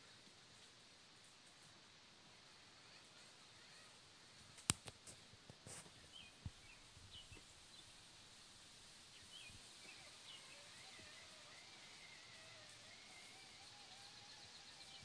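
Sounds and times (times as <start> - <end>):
faint bird chirps: 9.1 - 15.0.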